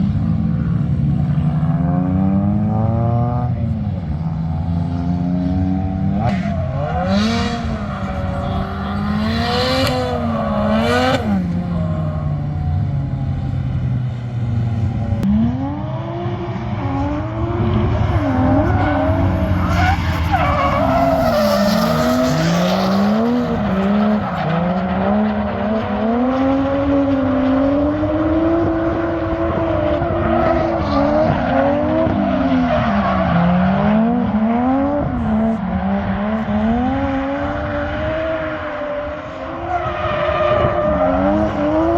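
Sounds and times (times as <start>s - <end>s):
car engine revving hard: 4.8s - 13.4s
tyres squealing and skidding: 17.8s - 26.2s, 37.6s - 41.9s.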